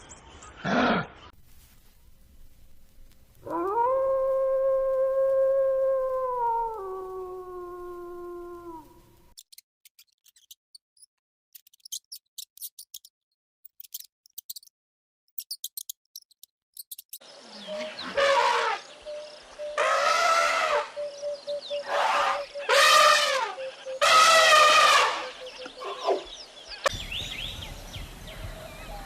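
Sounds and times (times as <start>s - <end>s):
animal howl: 3.4s - 9.1s, 19.7s - 21.0s, 21.7s - 26.3s
harsh animal call: 19.8s - 21.0s.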